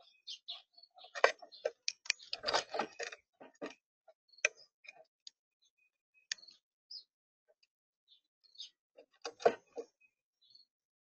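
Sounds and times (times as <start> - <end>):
high bird chirps: 0.0 - 3.0, 4.3 - 7.1
sharp clicks and scuffling: 1.0 - 3.8.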